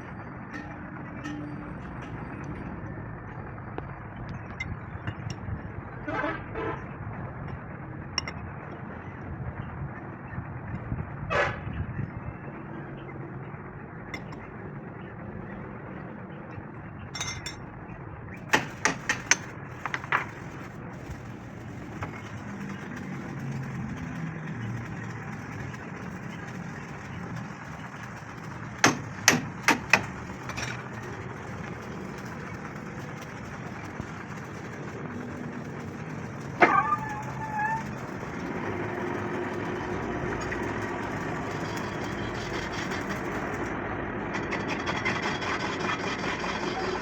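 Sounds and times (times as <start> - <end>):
workshop background hum: 0.0 - 47.0
hammer striking steel: 0.5 - 2.5, 17.2 - 17.6, 18.5 - 20.4, 28.8 - 30.8.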